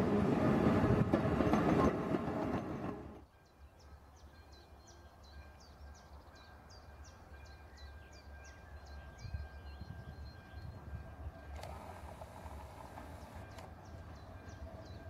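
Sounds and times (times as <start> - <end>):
songbird chirping: 3.2 - 15.0.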